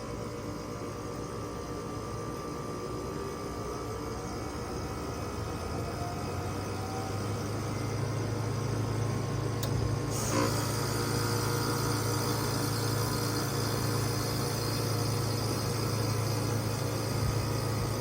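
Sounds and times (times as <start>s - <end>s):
heat pump compressor humming: 0.0s - 18.0s
small click: 9.6s - 9.9s.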